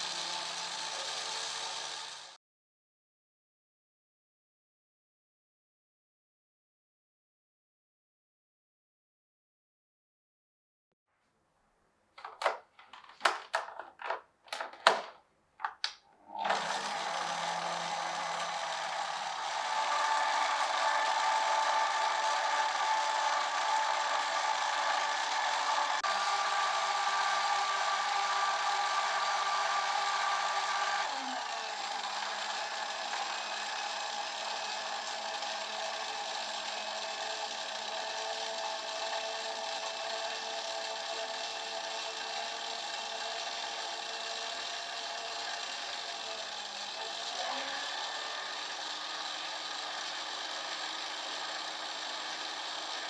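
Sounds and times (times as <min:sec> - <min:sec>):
small electric motor running: 0:00.0 - 0:02.4, 0:16.3 - 0:53.0.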